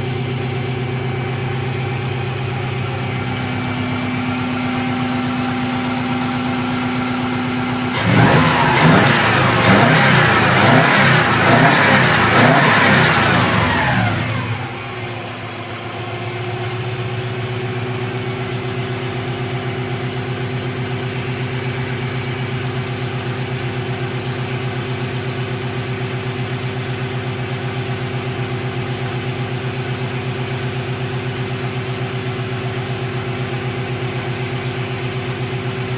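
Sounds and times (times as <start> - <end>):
car engine revving and idling: 0.0 - 35.9.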